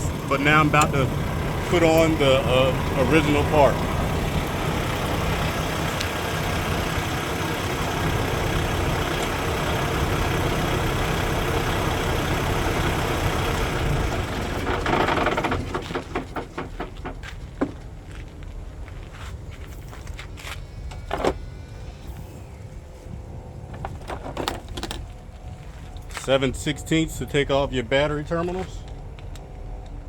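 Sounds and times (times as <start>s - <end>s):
diesel engine idling: 0.0s - 18.1s.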